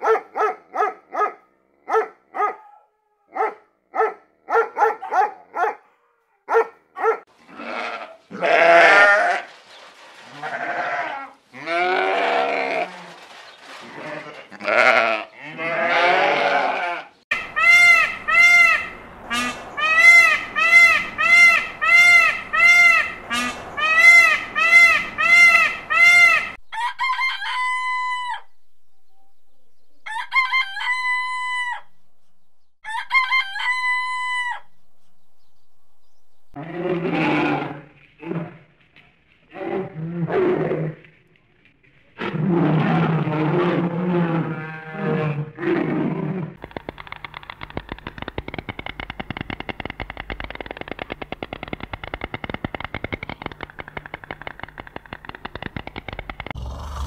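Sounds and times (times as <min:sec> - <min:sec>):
dog barking: 0:00.0 - 0:07.3
animal bleating: 0:07.4 - 0:09.5, 0:10.2 - 0:13.2, 0:13.8 - 0:17.2, 0:36.6 - 0:37.8, 0:42.7 - 0:45.4
rooster crowing: 0:26.6 - 0:28.5, 0:30.0 - 0:32.0, 0:32.8 - 0:34.7.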